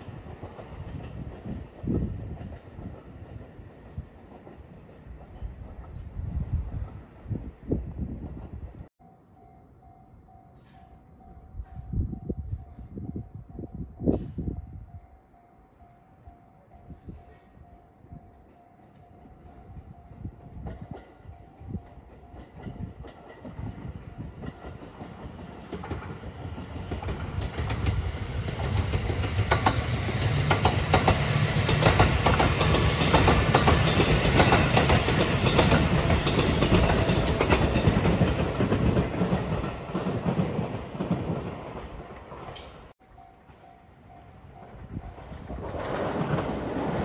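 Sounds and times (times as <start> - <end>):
train passing: 0.0 - 47.0
wheels clacking over rail joints: 20.5 - 44.2.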